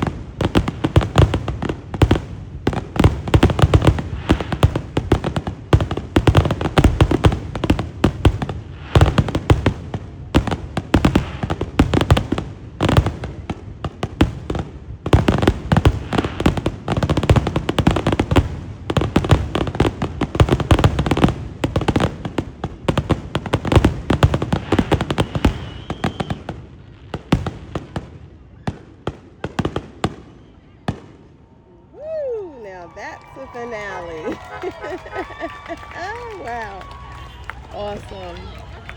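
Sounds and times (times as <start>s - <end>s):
fireworks bursts and bangs: 0.0s - 31.4s, 32.7s - 38.9s.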